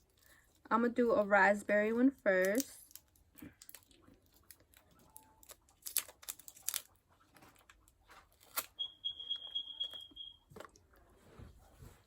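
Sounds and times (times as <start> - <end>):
plastic candy wrapper crinkling: 2.2 - 10.8
faint steady high tone: 8.7 - 10.8.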